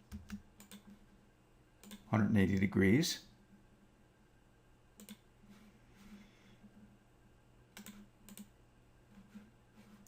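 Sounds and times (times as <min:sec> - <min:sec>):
mouse and keyboard clicks: 0:05.0 - 0:05.2, 0:07.8 - 0:08.5.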